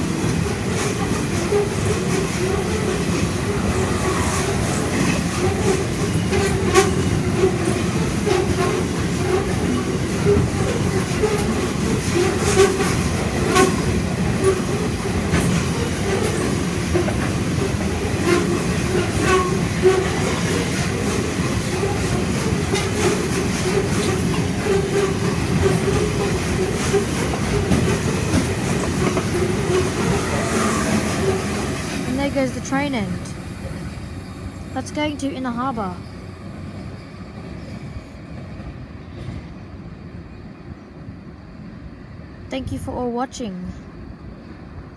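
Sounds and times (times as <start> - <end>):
train wheels rumbling on rails: 0.0 - 43.1
wheels clicking over rail joints: 0.2 - 32.1.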